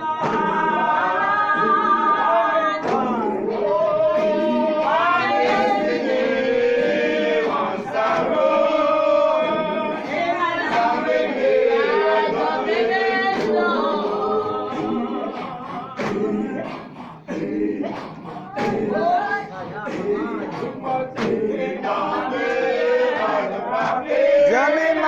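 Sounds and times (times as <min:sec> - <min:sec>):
group singing unaccompanied: 0:00.0 - 0:25.0.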